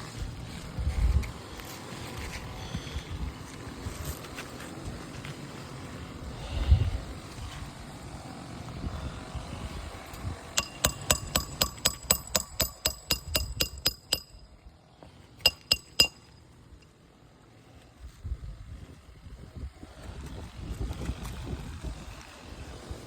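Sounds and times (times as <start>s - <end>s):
hammer striking metal: 10.6s - 14.5s, 15.4s - 16.4s.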